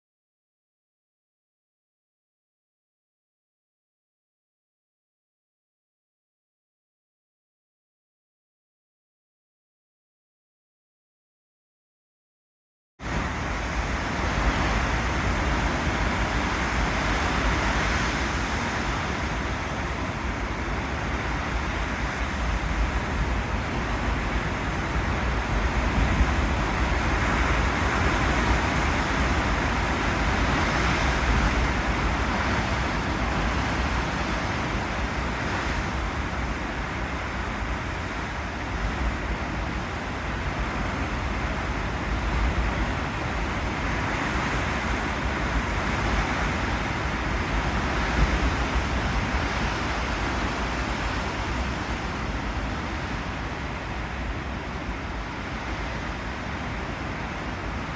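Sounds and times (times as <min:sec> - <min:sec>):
ocean surf breaking waves: 0:13.0 - 0:57.9.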